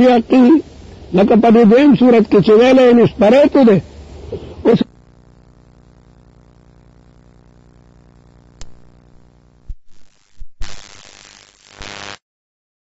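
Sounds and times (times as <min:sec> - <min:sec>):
electrical hum: 0:00.0 - 0:12.2
loud hiss: 0:00.0 - 0:12.2
sharp clicks: 0:08.5 - 0:09.8.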